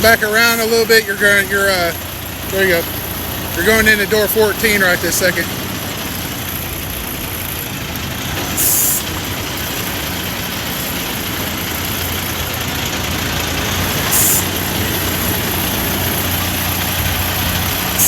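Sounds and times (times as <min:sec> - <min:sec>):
diesel truck engine running: 0:00.0 - 0:18.0
air brake hiss: 0:08.4 - 0:09.1, 0:14.0 - 0:14.7.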